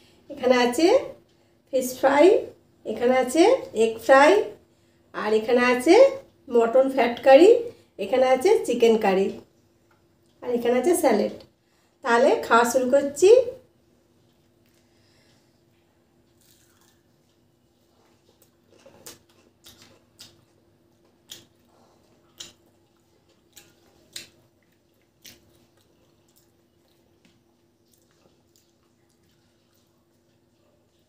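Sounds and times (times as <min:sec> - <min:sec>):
faint steady hum: 0:00.0 - 0:31.0
person chewing fried food: 0:14.1 - 0:31.0
wet mouth clicks and smacks: 0:18.9 - 0:21.7, 0:22.3 - 0:30.4.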